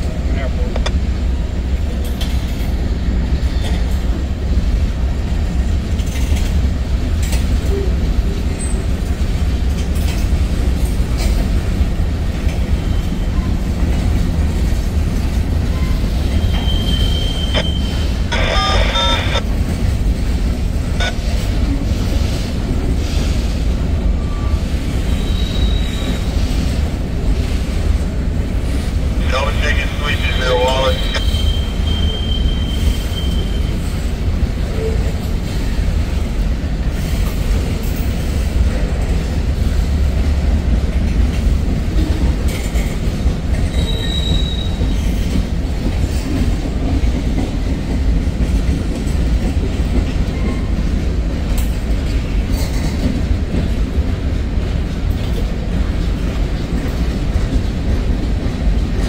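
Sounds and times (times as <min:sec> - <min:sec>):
train wheels rumbling on rails: 0:00.0 - 0:59.0
high wheel squeals: 0:15.8 - 0:19.4, 0:24.2 - 0:26.2, 0:31.0 - 0:33.8, 0:43.7 - 0:45.2.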